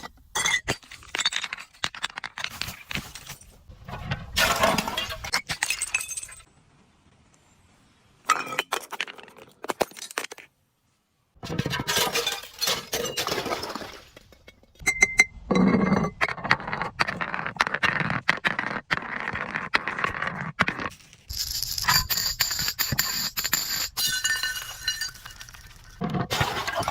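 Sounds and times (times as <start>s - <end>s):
glass bottles crushing and breaking: 0.3s - 3.4s, 4.3s - 6.5s, 8.3s - 10.5s, 11.4s - 16.3s, 21.3s - 26.9s.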